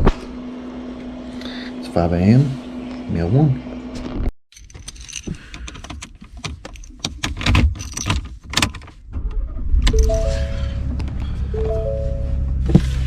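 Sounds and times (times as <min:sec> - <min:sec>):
vehicle engine rumble: 0:07.7 - 0:13.0
short musical notes: 0:10.0 - 0:10.8, 0:11.5 - 0:12.4.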